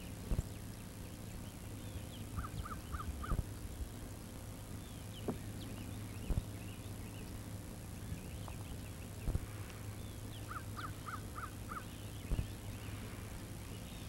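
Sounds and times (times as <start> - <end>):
birds chirping: 0.0 - 14.0
steady low hum: 0.0 - 14.0.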